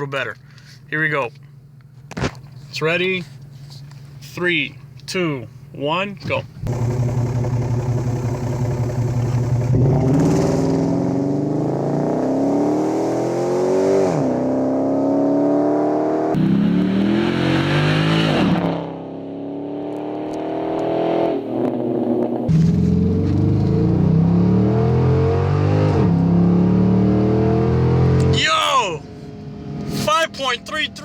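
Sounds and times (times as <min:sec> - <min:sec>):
car engine accelerating: 0:06.6 - 0:31.0.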